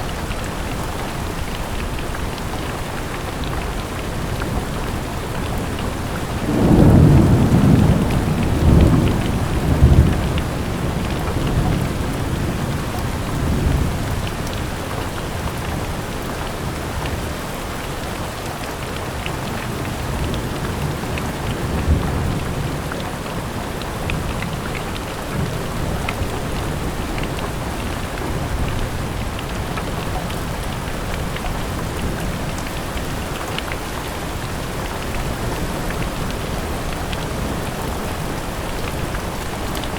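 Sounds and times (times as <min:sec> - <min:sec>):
steady rain falling: 0:00.0 - 0:39.9
thunder rumbling: 0:05.0 - 0:14.1.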